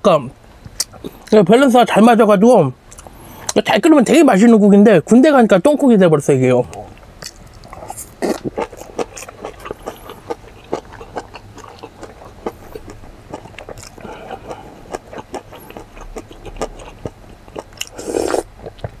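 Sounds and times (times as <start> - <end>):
wet chewing and lip-smacking: 6.7 - 19.0.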